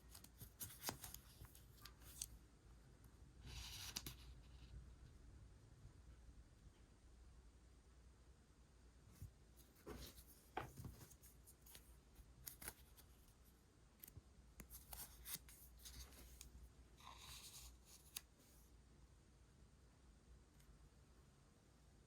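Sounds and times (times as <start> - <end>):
paper rustling: 9.6 - 13.3.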